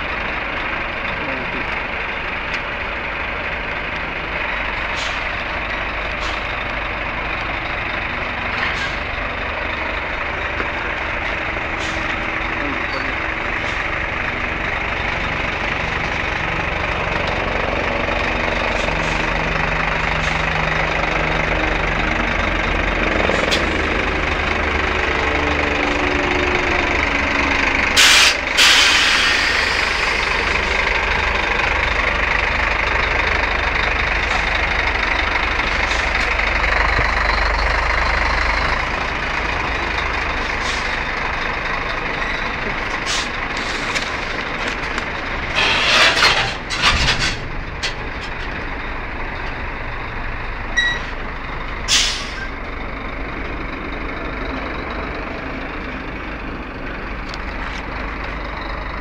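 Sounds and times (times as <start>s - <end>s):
truck diesel engine idling: 0.0s - 59.0s
compressed air hissing: 28.0s - 30.2s.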